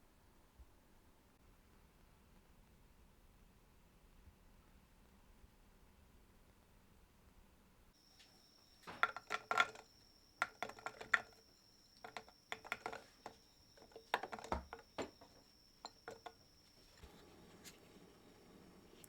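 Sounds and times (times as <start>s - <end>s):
dishes and cutlery clinking: 8.8s - 16.4s.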